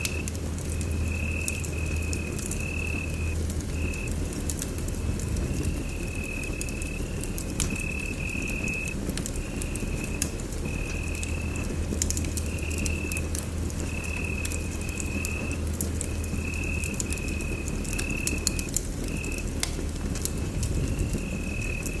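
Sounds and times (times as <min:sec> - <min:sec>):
fire low rumble: 0:00.0 - 0:22.0
wood fire crackling and popping: 0:00.0 - 0:22.0.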